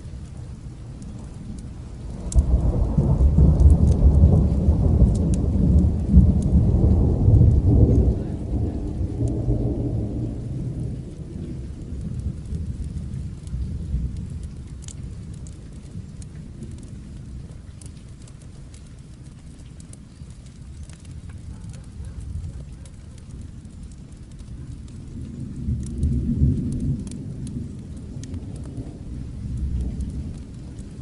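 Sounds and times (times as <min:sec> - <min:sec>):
rolling thunder: 0:00.0 - 0:19.9, 0:20.6 - 0:31.0
steady rain: 0:00.0 - 0:31.0.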